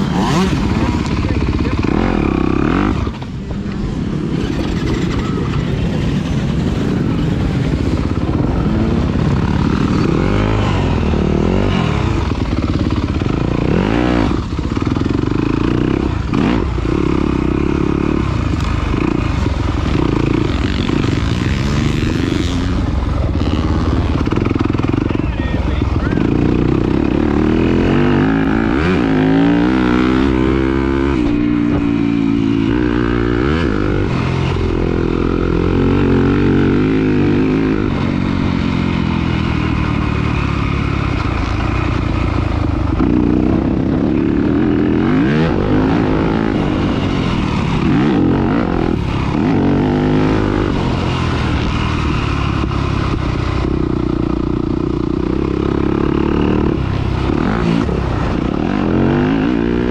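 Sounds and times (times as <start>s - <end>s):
racing engine revving: 0.0s - 3.4s.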